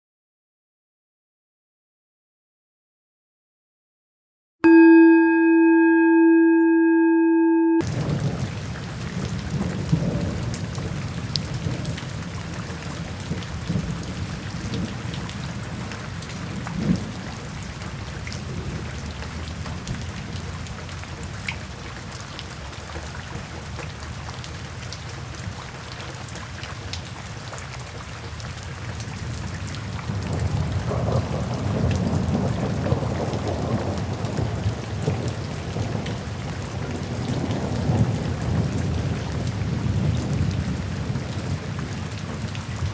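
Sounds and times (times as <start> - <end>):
thunder rumbling: 7.8 - 21.0, 29.2 - 42.9
steady rain falling: 7.8 - 42.9.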